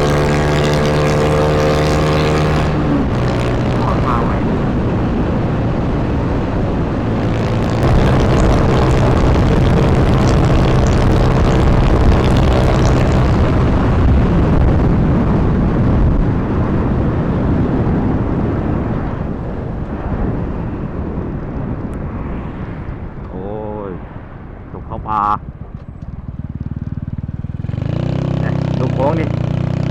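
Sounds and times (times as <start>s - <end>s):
motorcycle engine running: 0.0s - 15.8s, 25.4s - 29.9s
wind rushing over microphone: 0.0s - 29.9s.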